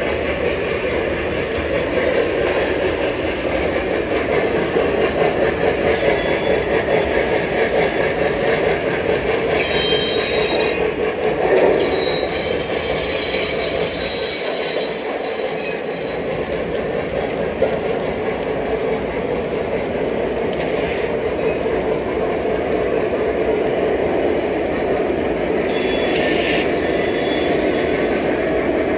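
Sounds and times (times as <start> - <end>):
model train rolling on track: 0.0 - 28.9
wheel squeals: 5.1 - 16.8.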